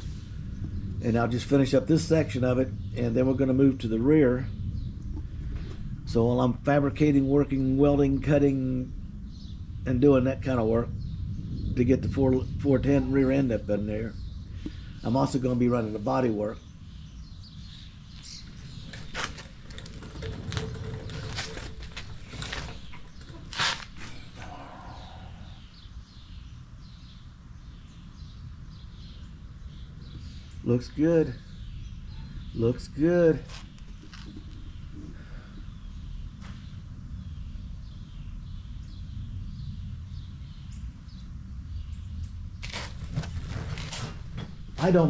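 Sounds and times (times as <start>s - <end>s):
low background rumble: 0.0s - 45.0s
small birds chirping: 7.4s - 45.0s
rustling and handling noise: 18.2s - 24.5s, 42.6s - 45.0s.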